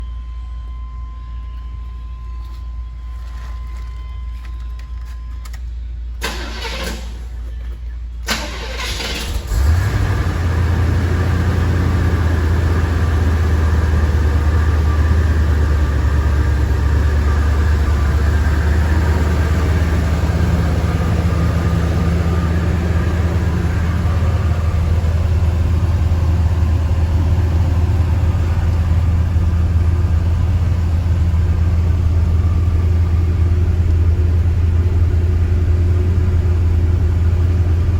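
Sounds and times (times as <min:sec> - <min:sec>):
starter motor cranking: 0:08.3 - 0:12.8
car engine idling: 0:08.3 - 0:37.9.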